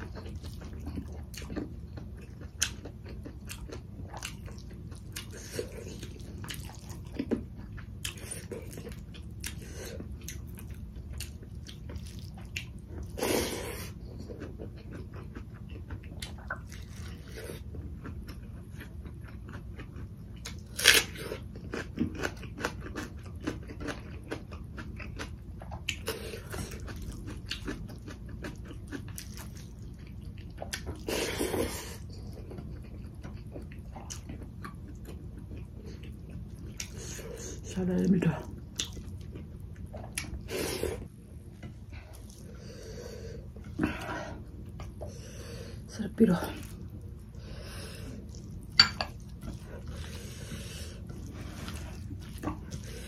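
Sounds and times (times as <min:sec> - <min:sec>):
chewing and mouth smacking: 0:00.0 - 0:13.2, 0:13.8 - 0:31.2, 0:32.0 - 0:37.6, 0:38.4 - 0:40.4, 0:48.1 - 0:53.0
loud crunch of onion: 0:20.4 - 0:25.2.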